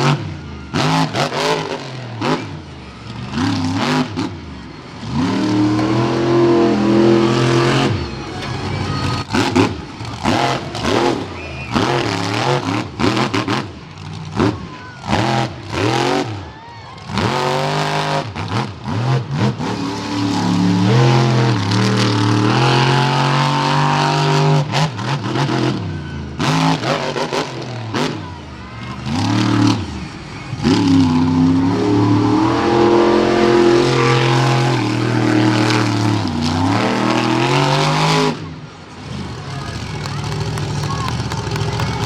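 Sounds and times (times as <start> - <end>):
monster truck engine revving: 0.0 - 42.0.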